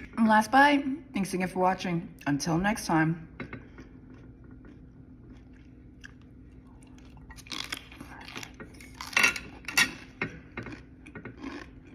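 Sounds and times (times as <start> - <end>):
chewing crisp cabbage: 3.6 - 11.9.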